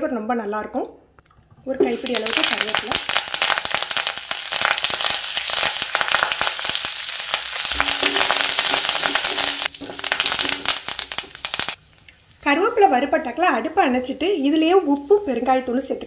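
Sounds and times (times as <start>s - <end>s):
leaves crackling in hot oil: 1.8s - 12.5s, 14.6s - 15.7s.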